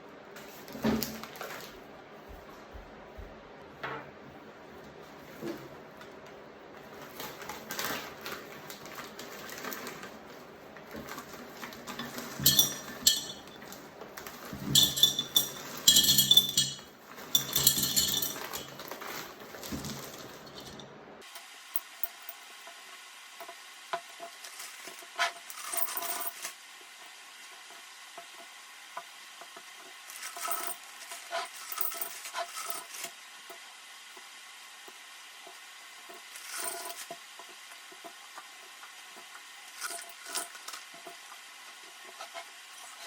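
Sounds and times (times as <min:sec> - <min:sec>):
rustling and clinking: 0:06.8 - 0:21.0, 0:24.2 - 0:26.5, 0:29.5 - 0:33.0, 0:36.1 - 0:38.2, 0:39.2 - 0:41.2.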